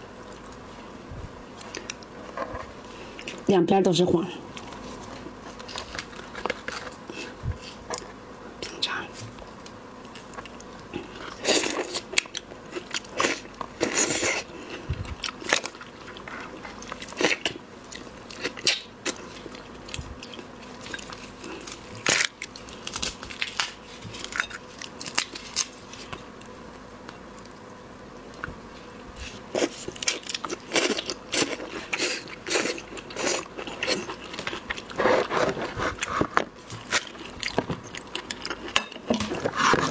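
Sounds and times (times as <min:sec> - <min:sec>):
person chewing wetly: 0:36.8 - 0:39.9.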